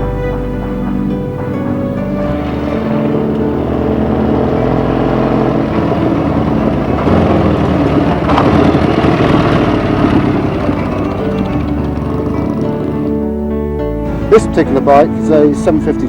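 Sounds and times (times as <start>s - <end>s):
motorcycle engine running: 1.4s - 13.4s.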